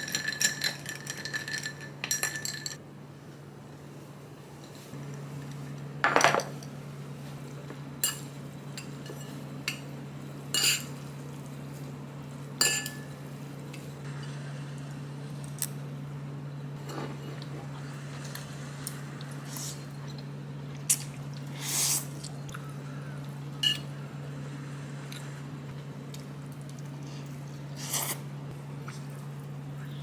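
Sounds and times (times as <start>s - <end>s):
dishes and cutlery clinking: 0.0s - 2.8s, 6.0s - 6.7s, 10.6s - 11.0s, 12.6s - 13.2s.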